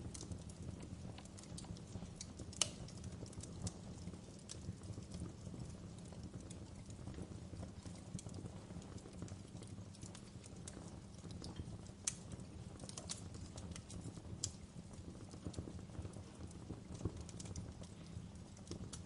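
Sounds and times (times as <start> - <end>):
fire crackling and popping: 0.0 - 19.0
fire low rumble: 0.0 - 19.0.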